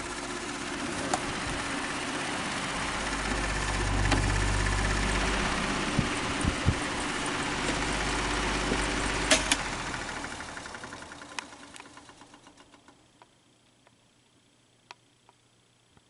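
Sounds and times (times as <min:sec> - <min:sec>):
electric fan rattling drone: 0:00.0 - 0:15.3
fan switch click: 0:08.7 - 0:09.7.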